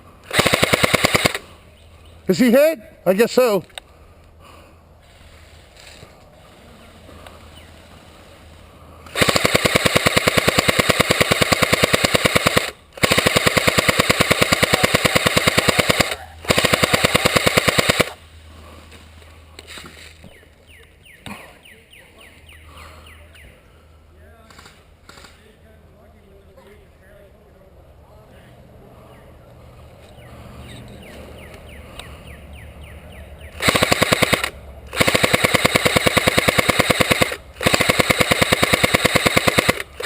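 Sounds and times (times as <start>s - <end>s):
airsoft gun rapid firing: 0.3s - 1.4s, 9.1s - 18.2s, 33.6s - 40.0s.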